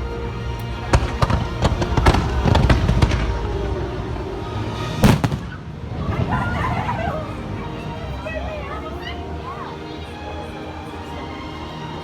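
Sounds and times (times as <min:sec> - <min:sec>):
fireworks bursting: 0:00.9 - 0:06.3.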